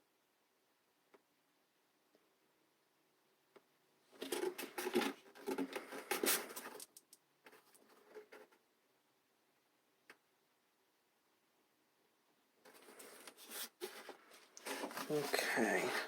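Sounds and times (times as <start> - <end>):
craft materials rustling and scratching: 4.2 - 8.6, 12.6 - 16.0.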